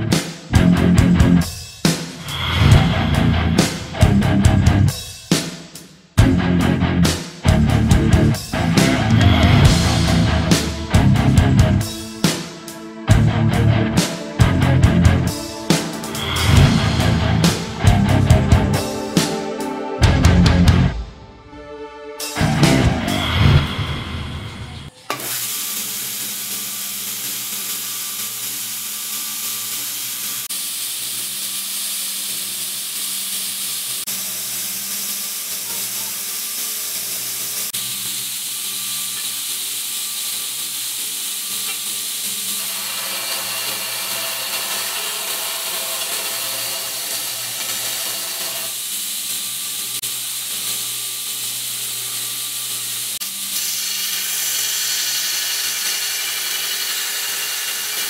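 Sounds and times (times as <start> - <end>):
low motor hum: 2.5 - 4.9, 6.2 - 12.2, 13.0 - 15.6, 16.2 - 18.8
sanding belt hiss: 25.0 - 58.0.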